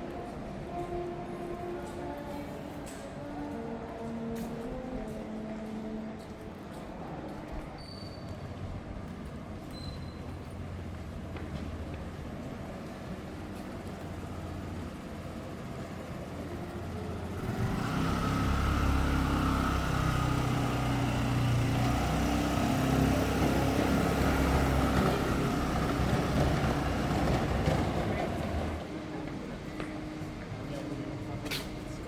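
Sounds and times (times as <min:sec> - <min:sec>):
street traffic: 0:00.0 - 0:32.0
vehicle engine: 0:13.3 - 0:28.8.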